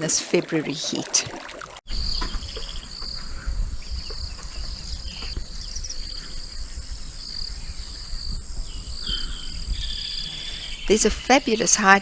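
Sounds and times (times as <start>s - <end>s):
low rumble: 1.9s - 11.4s
high steady insect whine: 1.9s - 11.9s
insects trilling: 1.9s - 12.0s.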